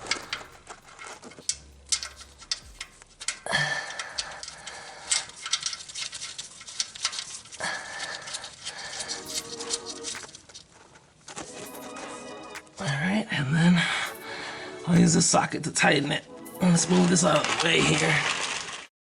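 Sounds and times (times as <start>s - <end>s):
hand tools clicking and knocking: 0.0s - 7.3s, 14.1s - 14.4s.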